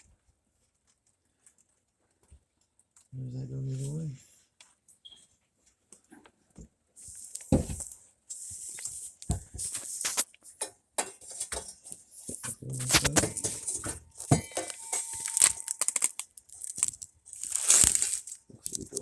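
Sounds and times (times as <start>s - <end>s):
metal pipes clinking and knocking: 10.6s - 17.6s
metallic ring: 13.4s - 16.2s.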